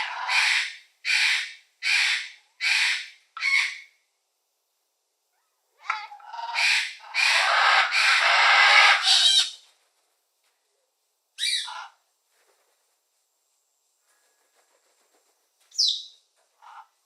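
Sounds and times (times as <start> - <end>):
bird squawking harshly: 0.0 - 3.9, 5.8 - 9.6, 11.4 - 11.9.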